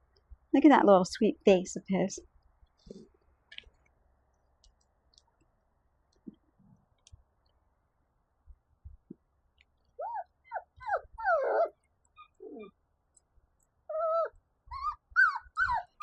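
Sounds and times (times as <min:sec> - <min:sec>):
puppy whining and crying: 0:10.0 - 0:12.7, 0:13.9 - 0:16.0.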